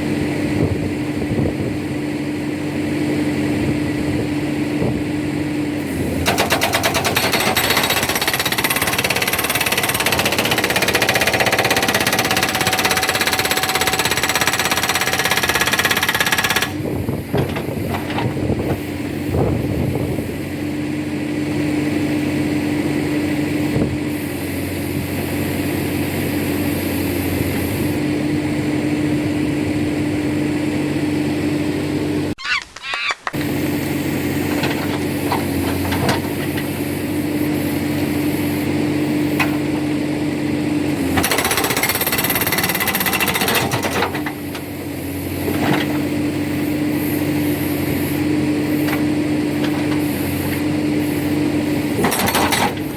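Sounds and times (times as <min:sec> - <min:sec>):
backhoe engine running: 0:00.0 - 0:32.4, 0:33.2 - 0:52.9
hydraulic rock breaker hammering: 0:06.0 - 0:18.5, 0:40.9 - 0:44.7, 0:51.8 - 0:52.9.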